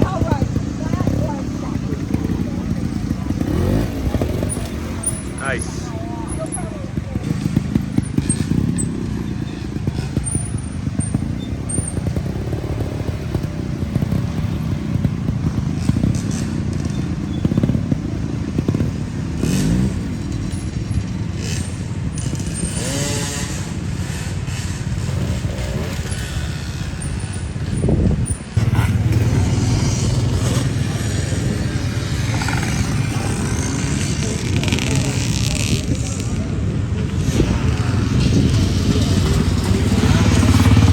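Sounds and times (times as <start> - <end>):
dirt bike engines revving: 0.0 - 40.9.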